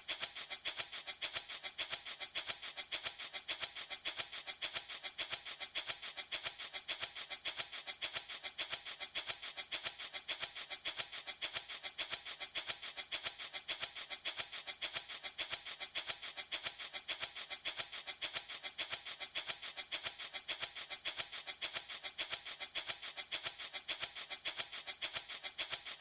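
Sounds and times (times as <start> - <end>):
rattle shaken: 0.0 - 26.0.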